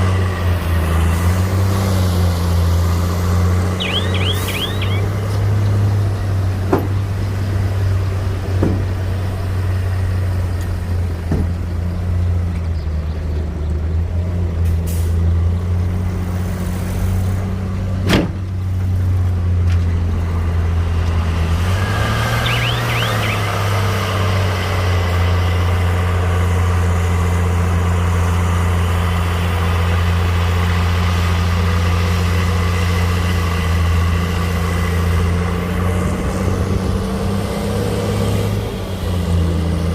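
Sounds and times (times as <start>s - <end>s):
diesel engine running: 0.0s - 37.4s
short high squeal: 3.8s - 5.1s, 21.8s - 23.5s.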